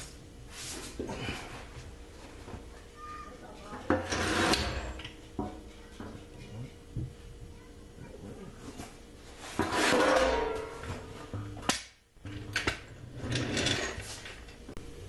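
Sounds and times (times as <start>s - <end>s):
jack scraping and clattering: 3.8s - 5.5s, 9.3s - 11.6s, 12.2s - 14.6s.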